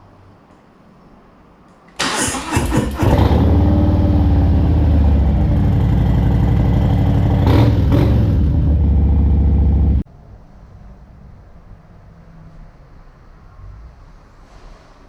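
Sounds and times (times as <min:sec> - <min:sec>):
motorcycle engine idling: 0:02.8 - 0:10.0.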